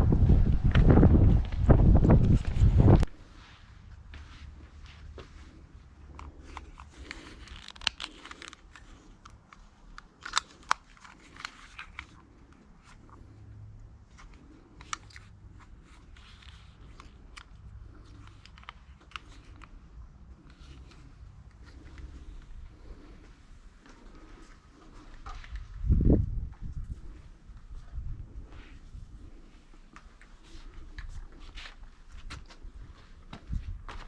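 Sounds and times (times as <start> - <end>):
soft rustling: 1.2 - 13.4.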